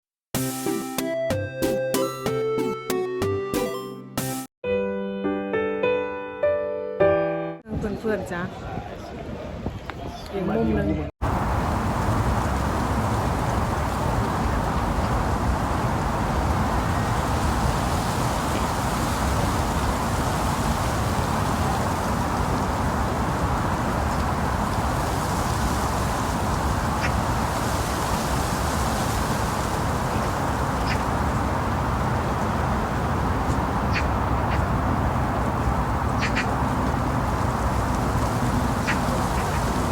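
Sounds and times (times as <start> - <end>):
low outdoor rumble: 11.2 - 27.7, 28.4 - 39.9
bird calls: 26.6 - 27.4, 30.1 - 39.9.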